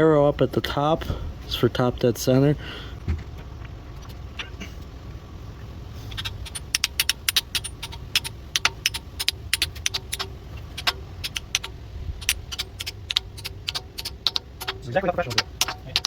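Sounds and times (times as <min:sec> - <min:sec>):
low steady hum: 0:00.0 - 0:16.0
metallic clicks of tools: 0:06.2 - 0:16.0.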